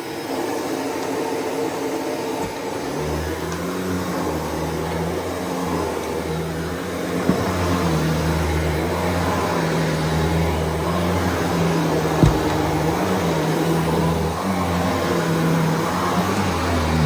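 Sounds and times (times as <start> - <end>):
vacuum cleaner on carpet: 0.0 - 17.0
single knock: 12.2 - 13.0.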